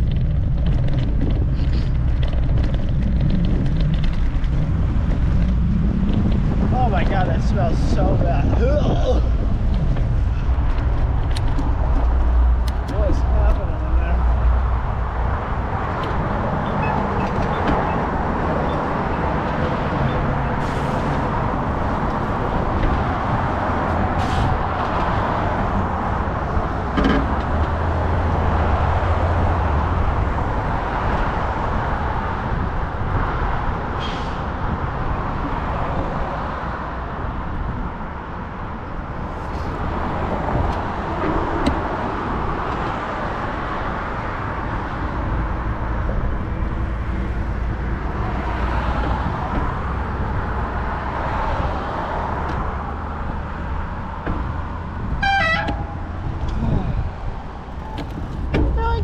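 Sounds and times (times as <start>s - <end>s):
bike road noise rumble: 0.0s - 59.0s
wind rush: 0.0s - 59.0s.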